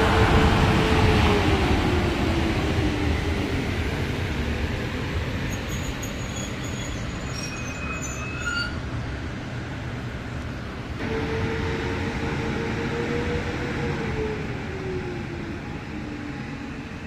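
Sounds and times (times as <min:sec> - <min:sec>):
train rumbling on rails: 0:00.0 - 0:17.0
wheels squealing: 0:05.5 - 0:08.8.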